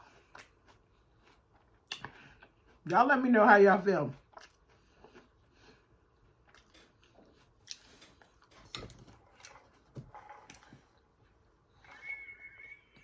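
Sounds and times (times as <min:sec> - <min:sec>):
chewing and lip-smacking: 0:00.0 - 0:03.0, 0:04.1 - 0:11.4.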